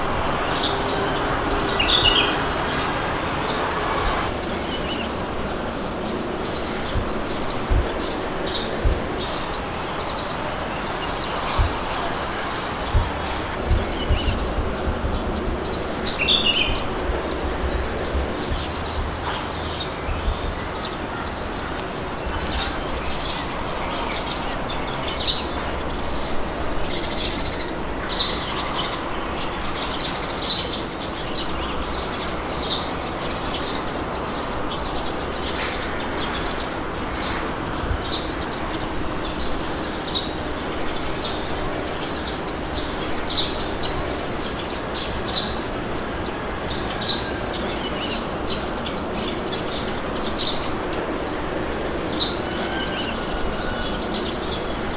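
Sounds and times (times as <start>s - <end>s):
small birds chirping: 0.0s - 54.9s
wind blowing with low rumble: 0.0s - 54.9s.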